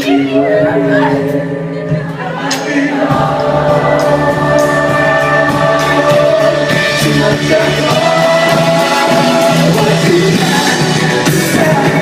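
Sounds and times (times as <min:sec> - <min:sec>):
rock band playing live: 0:00.0 - 0:12.0
voices singing together: 0:00.0 - 0:12.0.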